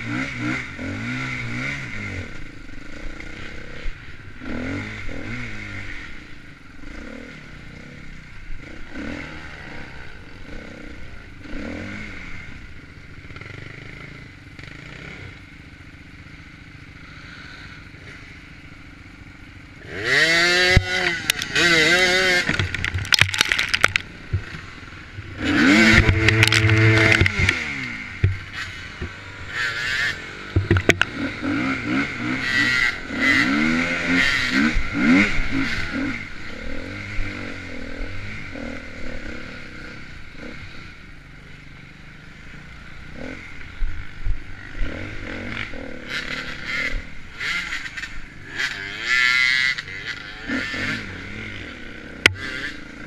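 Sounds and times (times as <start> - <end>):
dirt bike engine revving: 0.0 - 53.0
knocks and rattles: 22.4 - 24.7, 30.5 - 31.1.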